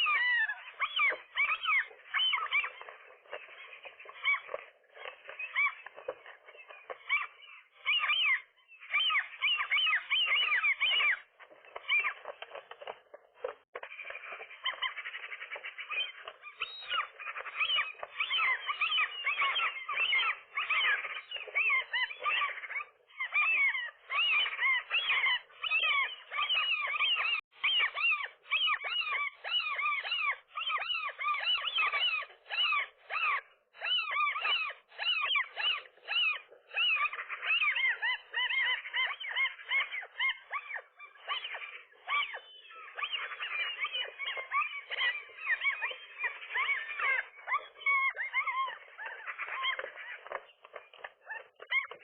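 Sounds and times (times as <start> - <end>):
gulls calling: 0.0 - 52.0.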